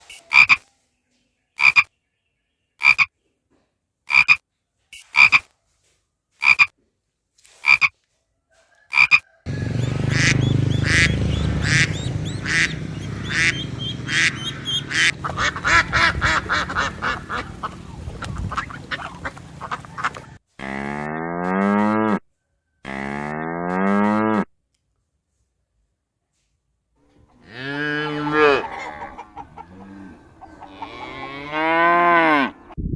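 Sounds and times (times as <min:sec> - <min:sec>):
animal calls: 0:00.0 - 0:00.7, 0:08.9 - 0:21.8, 0:27.1 - 0:32.8
chorus of overlapping animal calls: 0:08.6 - 0:20.8, 0:27.1 - 0:32.8.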